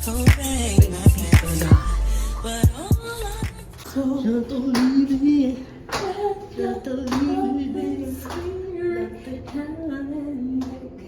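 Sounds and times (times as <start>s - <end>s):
woman singing slow melody: 0.1s - 11.0s
sharp claps: 5.9s - 6.2s, 7.1s - 7.3s.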